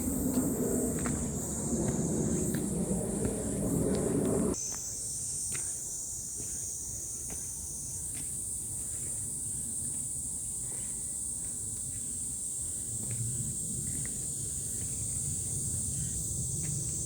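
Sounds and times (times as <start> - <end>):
low rumble: 0.0 - 4.6
high-pitched insect chorus: 0.0 - 17.0.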